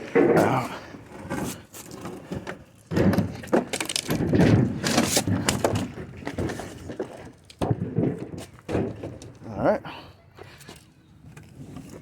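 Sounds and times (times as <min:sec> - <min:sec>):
refrigerator scraping and knocking: 0:02.3 - 0:09.3.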